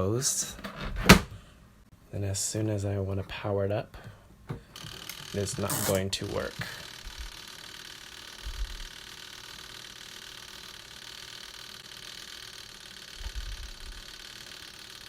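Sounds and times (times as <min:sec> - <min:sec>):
electric motor humming: 0:04.8 - 0:15.0.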